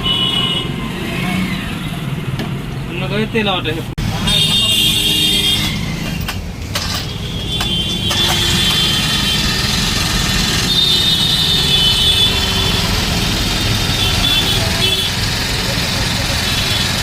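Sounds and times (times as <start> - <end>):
small petrol engine running: 8.1 - 17.0.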